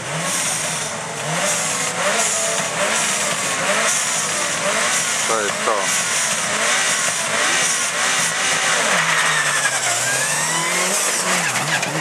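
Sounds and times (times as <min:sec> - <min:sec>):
rally car engine pulling away: 0:00.0 - 0:12.0.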